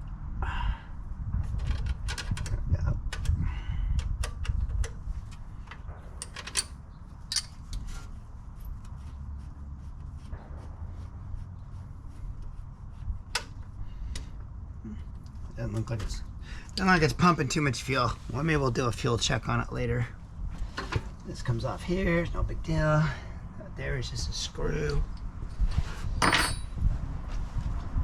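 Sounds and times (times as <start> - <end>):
steady low rumble: 0.0 - 28.0
clinks of metal tools and parts: 5.7 - 7.8, 26.2 - 26.8.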